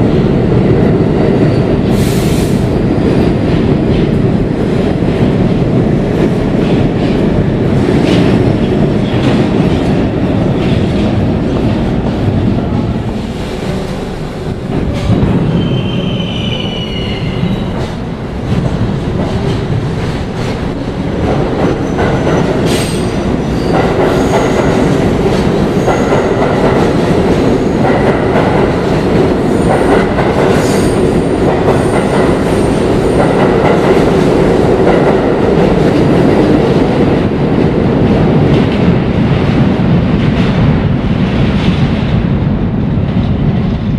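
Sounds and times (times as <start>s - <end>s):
subway train clattering on rails: 0.0s - 43.9s
high wheel squeal: 15.5s - 17.8s.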